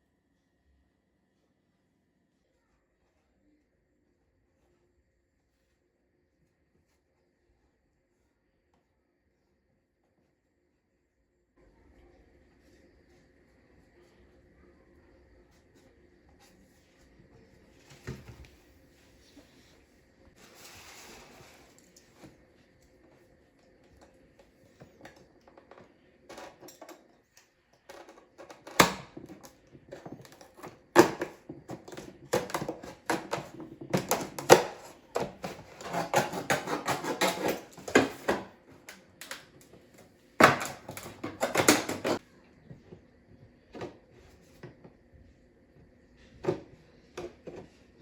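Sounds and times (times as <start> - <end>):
objects clicking and knocking: 24.8 - 42.2
clattering and scraping: 27.9 - 38.6, 40.4 - 42.2.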